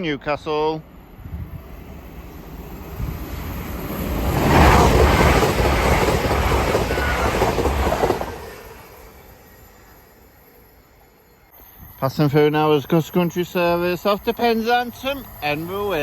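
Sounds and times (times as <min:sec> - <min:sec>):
train wheels rumbling on rail: 0:00.0 - 0:10.3.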